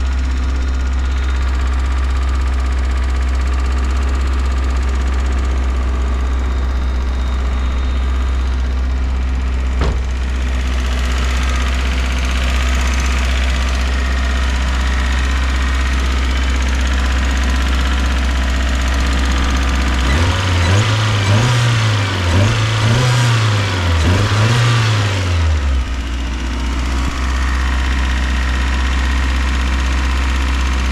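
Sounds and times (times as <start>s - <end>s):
car engine idling and revving: 0.0s - 30.9s.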